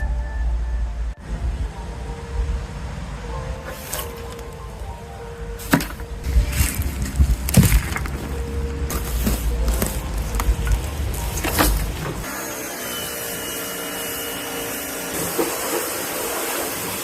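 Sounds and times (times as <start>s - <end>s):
low rumble: 0.0s - 12.3s.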